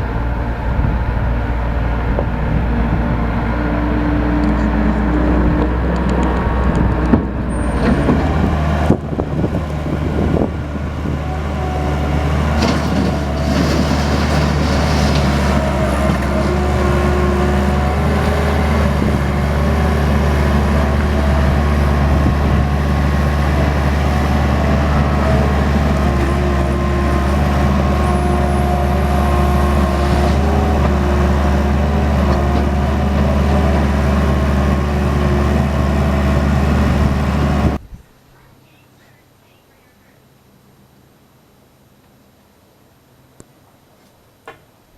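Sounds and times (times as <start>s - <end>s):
skid steer engine running: 0.0s - 37.8s
knocks and clatters: 12.5s - 16.6s.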